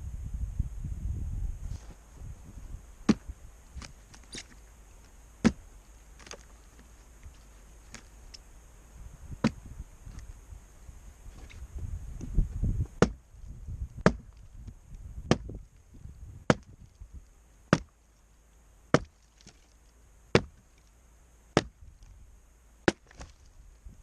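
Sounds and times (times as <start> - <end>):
axe chopping firewood: 3.1 - 4.6, 5.4 - 6.4, 9.4 - 9.7, 12.9 - 13.2, 14.0 - 14.4, 15.2 - 15.6, 16.5 - 16.8, 17.7 - 17.9, 18.9 - 19.7, 20.3 - 20.7, 21.6 - 21.8, 22.8 - 23.4.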